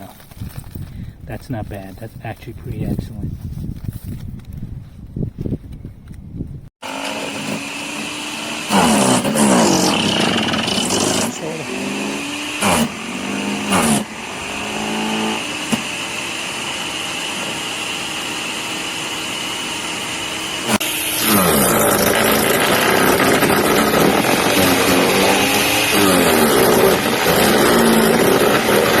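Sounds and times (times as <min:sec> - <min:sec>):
electric wood chipper running: 0:06.8 - 0:29.0
branches being shredded: 0:20.8 - 0:29.0.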